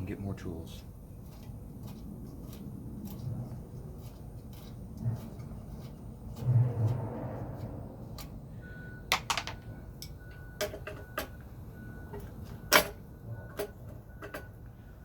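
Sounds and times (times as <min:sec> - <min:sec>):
tools and parts clicking: 0:09.1 - 0:11.5, 0:12.1 - 0:14.6.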